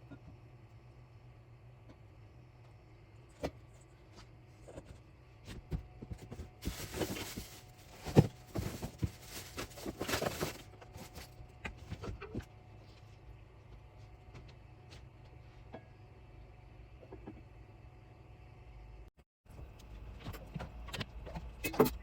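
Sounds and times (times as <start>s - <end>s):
rustling and clattering: 4.6s - 12.5s.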